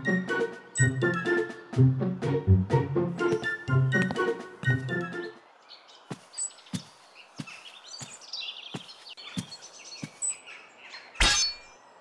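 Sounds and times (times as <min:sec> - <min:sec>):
birds chirping: 0:03.1 - 0:12.0.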